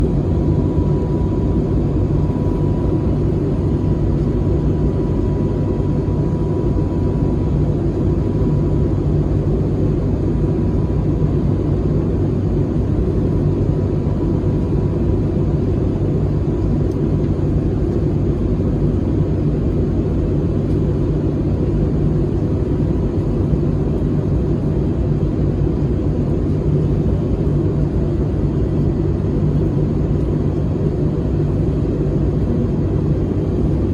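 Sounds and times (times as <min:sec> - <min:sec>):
airliner engines and airflow rumble: 0:00.0 - 0:33.9
faint steady whine: 0:00.0 - 0:33.9.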